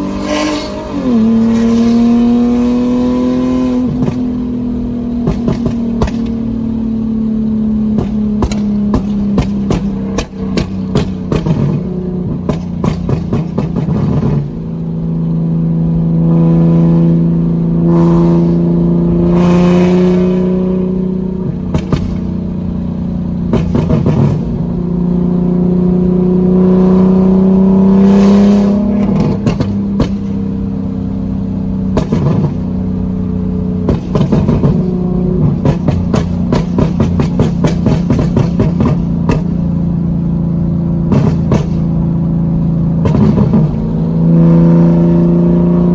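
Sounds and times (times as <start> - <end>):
exhaust crackling and popping: 0.0 - 45.0
car engine revving: 0.0 - 45.9.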